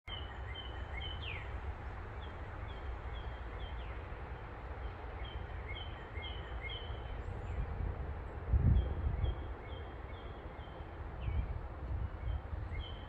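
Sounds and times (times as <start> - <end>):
songbirds chirping: 0.1 - 13.0.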